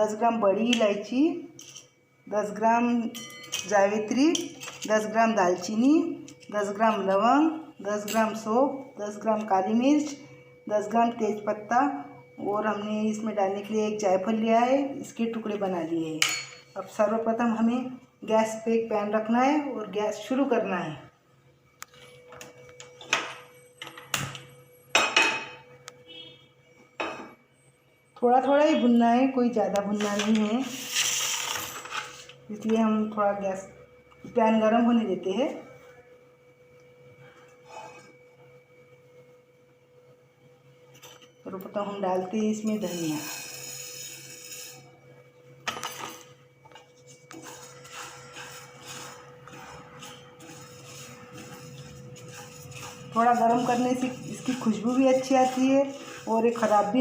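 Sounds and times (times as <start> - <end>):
seeds rustling in dry pan: 47.4 - 57.0.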